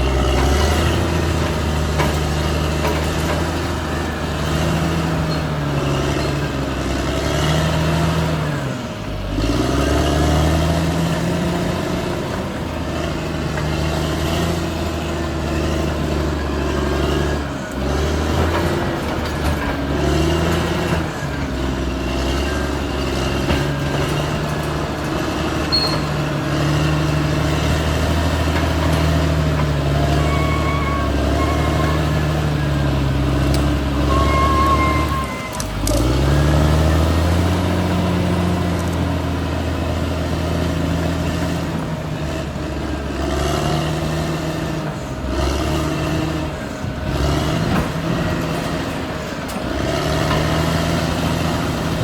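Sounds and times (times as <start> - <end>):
bulldozer diesel engine under load: 0.0 - 52.0
short beeps: 34.0 - 35.8.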